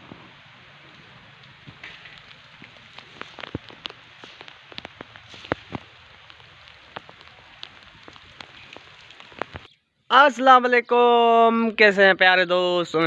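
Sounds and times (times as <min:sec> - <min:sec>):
rain hissing: 0:00.0 - 0:09.7
raindrops tapping on surfaces: 0:00.0 - 0:09.7.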